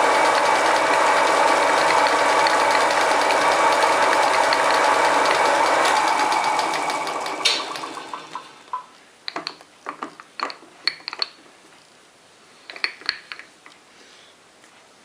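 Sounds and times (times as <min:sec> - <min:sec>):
drill bit cutting steel: 0:00.0 - 0:08.8
lathe motor humming: 0:00.0 - 0:08.8.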